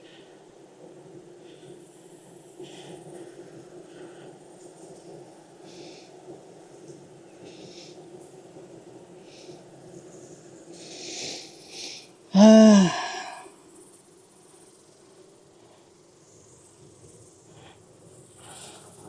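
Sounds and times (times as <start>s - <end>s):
man grunting: 12.4s - 13.4s.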